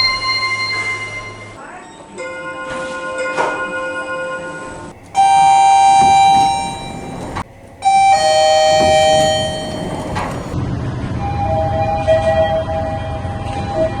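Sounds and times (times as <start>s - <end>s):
single elevator chime: 5.0s - 10.6s.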